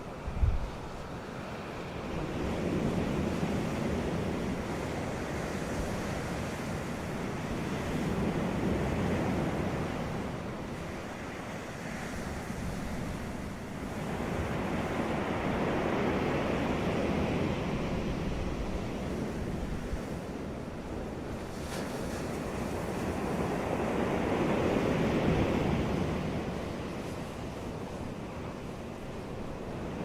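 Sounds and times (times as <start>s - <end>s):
ocean surf breaking: 0.0s - 30.0s
wind on microphone: 0.1s - 1.2s.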